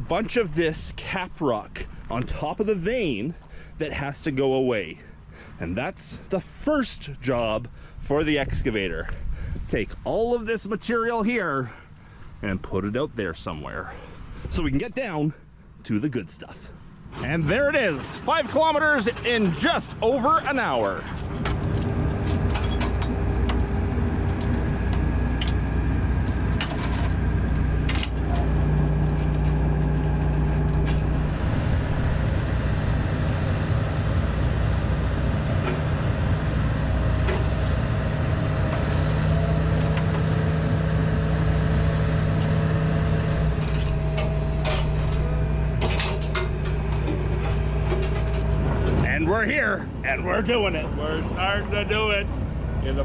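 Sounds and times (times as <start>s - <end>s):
excavator diesel engine running: 18.2s - 53.0s
light metallic clinks and rattles: 21.1s - 23.2s, 25.4s - 27.3s, 43.6s - 47.2s.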